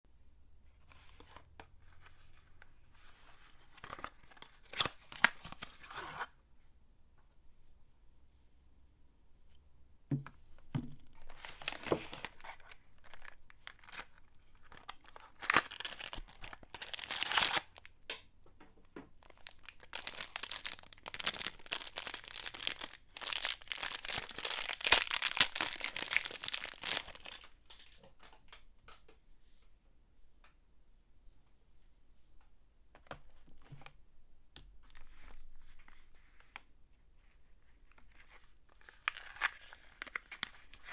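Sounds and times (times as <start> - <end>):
wrapper crinkling and tearing: 11.2 - 17.9, 19.2 - 28.0, 38.1 - 40.9.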